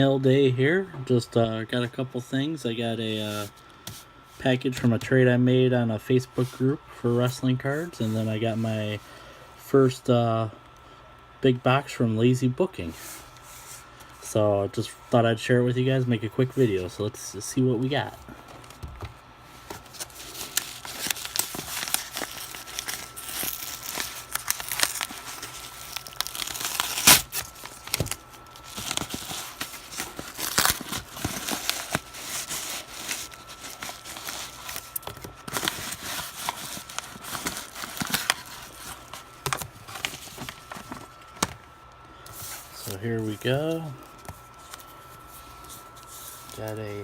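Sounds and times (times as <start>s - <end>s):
packaging crinkling and rustling: 17.9s - 47.0s
packaging ripping: 19.7s - 41.5s.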